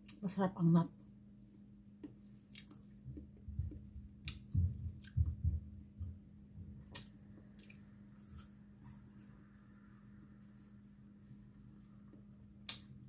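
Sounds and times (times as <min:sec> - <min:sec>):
person chewing: 0:02.4 - 0:03.0, 0:04.2 - 0:05.3, 0:06.9 - 0:08.6.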